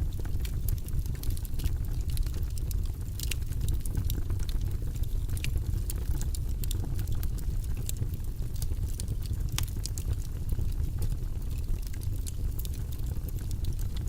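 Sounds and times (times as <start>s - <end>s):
low rumble of burning fire: 0.0s - 14.0s
wood fire crackling: 0.0s - 14.0s.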